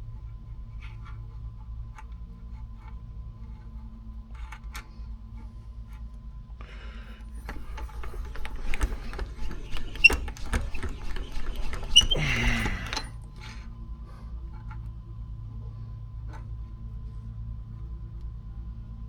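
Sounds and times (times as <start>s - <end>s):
short scraping rasp: 7.5s - 13.6s.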